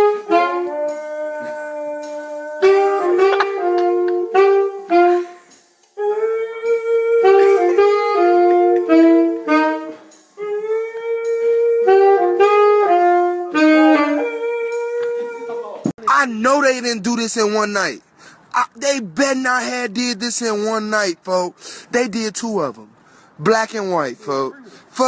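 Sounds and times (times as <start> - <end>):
saxophone playing jazzy melody: 0.0 - 15.9.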